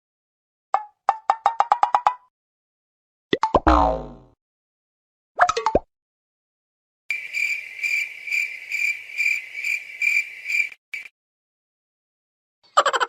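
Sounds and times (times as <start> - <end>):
cricket chirping: 7.1 - 11.1.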